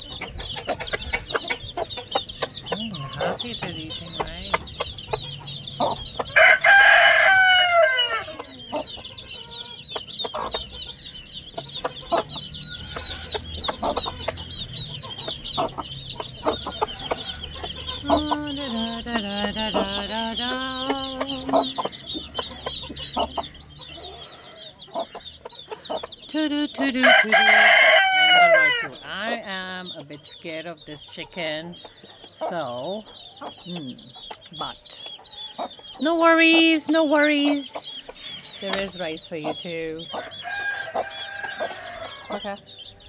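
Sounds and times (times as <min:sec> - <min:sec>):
chicks peeping: 0:00.0 - 0:43.0
chicken calling loudly: 0:06.3 - 0:08.6, 0:27.0 - 0:29.0.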